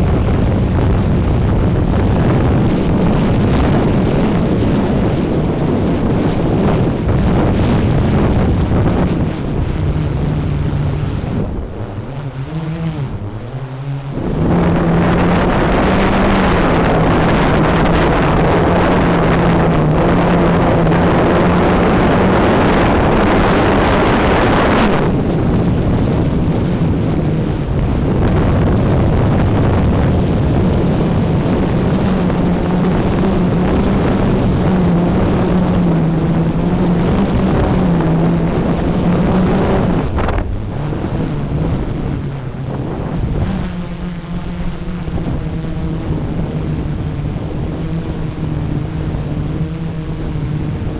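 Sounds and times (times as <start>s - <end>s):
drone propellers humming: 0.0s - 50.9s
loud rushing noise: 38.3s - 46.3s.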